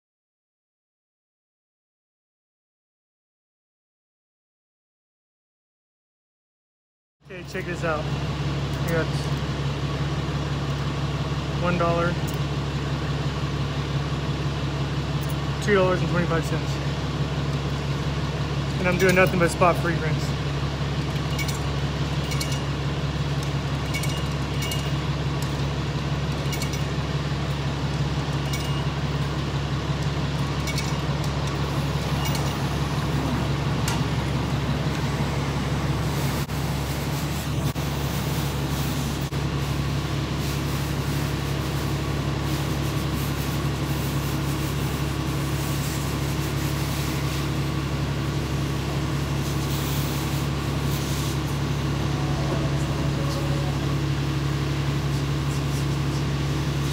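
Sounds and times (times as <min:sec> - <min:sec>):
constant low hum: 0:07.3 - 0:56.9
water spraying from wand: 0:30.1 - 0:56.9.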